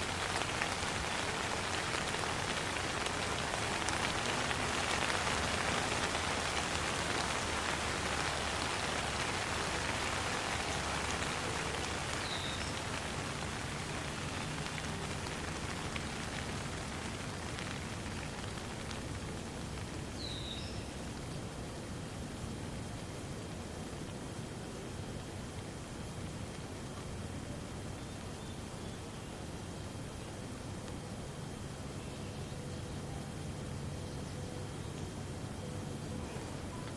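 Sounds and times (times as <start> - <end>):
rain pattering: 0.0 - 36.9
faint high chirps: 33.9 - 36.9.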